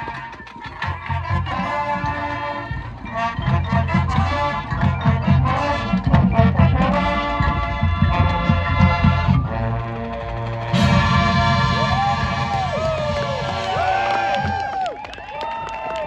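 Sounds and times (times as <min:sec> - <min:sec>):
brass chords: 0:01.1 - 0:14.8
heavy low drum pulses: 0:02.9 - 0:15.0.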